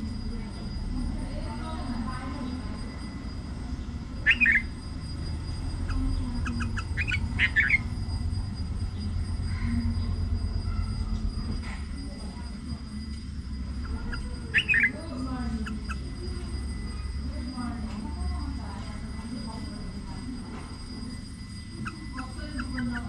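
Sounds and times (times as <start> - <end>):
sharp bird calls: 4.2 - 8.3, 13.7 - 17.2, 21.6 - 23.0.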